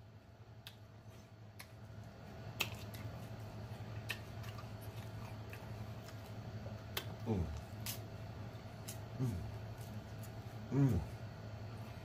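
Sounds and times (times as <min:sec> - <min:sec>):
wet lip and tongue smacks: 0:00.6 - 0:00.9, 0:02.5 - 0:03.2, 0:03.9 - 0:08.1
quiet chewing: 0:00.6 - 0:12.0.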